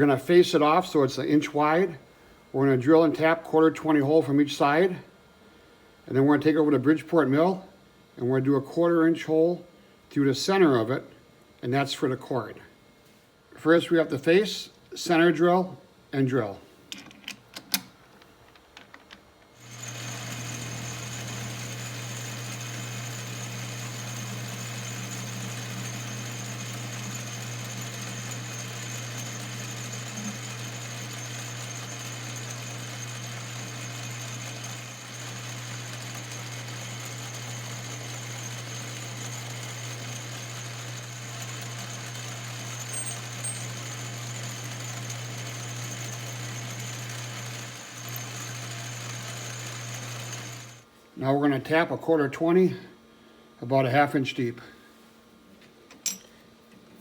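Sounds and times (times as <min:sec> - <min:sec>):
metal lathe humming and whining: 0:19.6 - 0:50.8.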